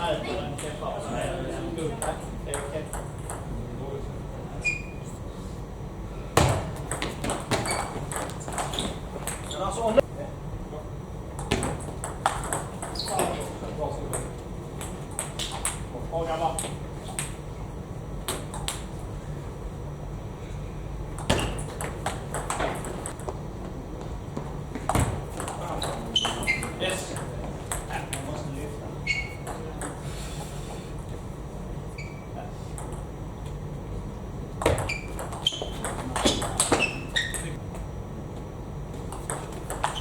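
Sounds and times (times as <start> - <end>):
table tennis ball hits: 6.4 - 9.5, 11.3 - 15.9, 18.3 - 18.9, 21.1 - 23.3, 24.8 - 28.3, 34.6 - 37.6, 39.1 - 40.0.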